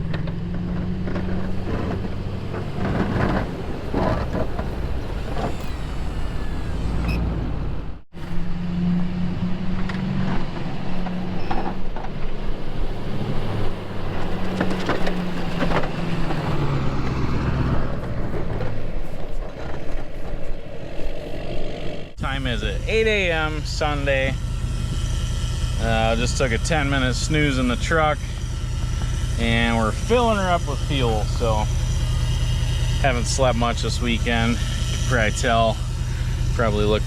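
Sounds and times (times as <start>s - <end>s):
truck engine running: 0.0s - 37.0s.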